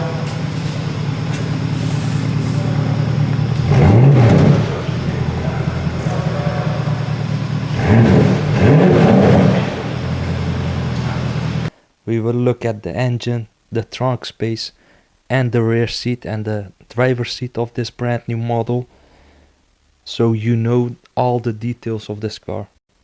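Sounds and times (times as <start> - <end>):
car engine idling and revving: 0.0 - 11.7.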